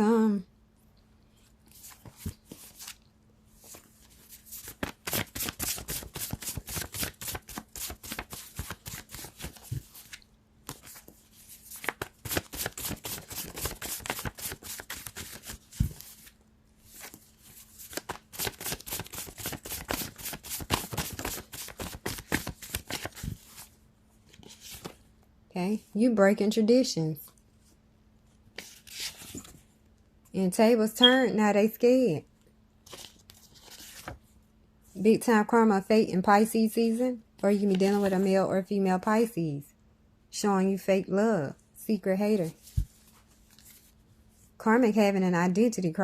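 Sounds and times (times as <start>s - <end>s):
cards being shuffled: 3.6s - 23.7s, 32.9s - 34.2s.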